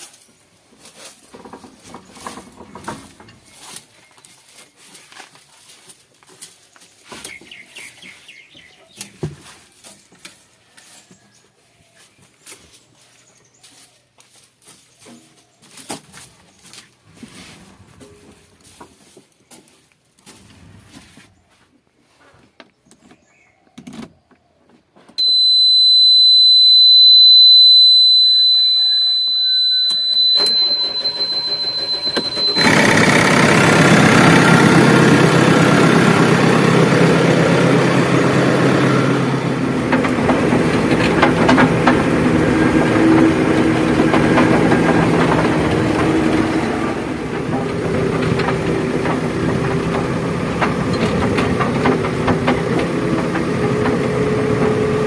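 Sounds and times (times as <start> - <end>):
high electronic warning beep: 25.2 - 34.8
diesel engine starting and idling: 29.1 - 55.0.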